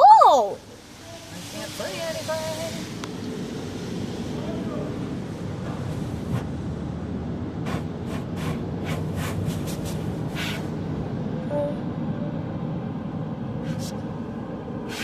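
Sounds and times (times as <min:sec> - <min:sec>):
car wash low rumble: 0:00.0 - 0:15.0
water spray hissing bursts: 0:00.2 - 0:03.1.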